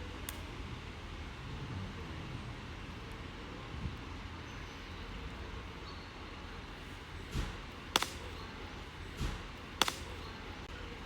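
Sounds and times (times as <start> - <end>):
outdoor hiss: 0.0 - 11.0
firewood knocking: 7.2 - 8.3, 9.0 - 10.2
firewood cracking: 7.2 - 8.4, 9.0 - 10.3.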